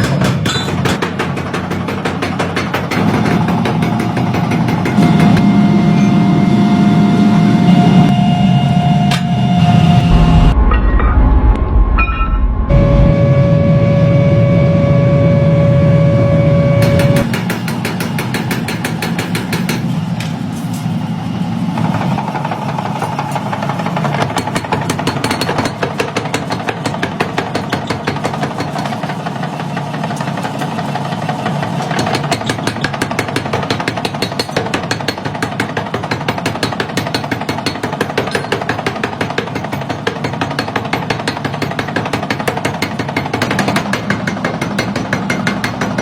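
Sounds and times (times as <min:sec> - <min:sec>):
factory machinery knocking rapidly: 0:00.0 - 0:05.5, 0:16.8 - 0:20.5, 0:21.4 - 0:46.0.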